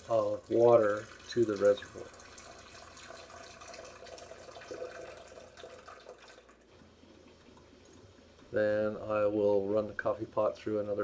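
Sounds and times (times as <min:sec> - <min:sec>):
water pouring into reservoir: 0:00.0 - 0:08.6.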